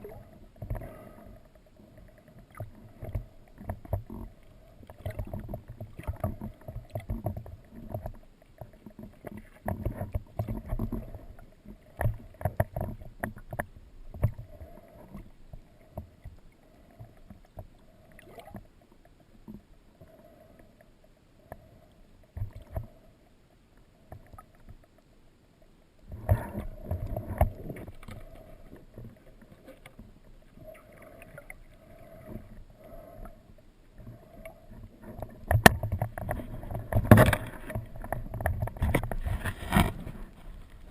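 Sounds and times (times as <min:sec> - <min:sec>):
underwater knocks and clicks: 0:00.0 - 0:01.0, 0:02.1 - 0:18.7, 0:22.3 - 0:23.0, 0:24.0 - 0:25.0, 0:26.1 - 0:31.6, 0:34.0 - 0:40.9
muffled underwater movement: 0:00.0 - 0:40.9.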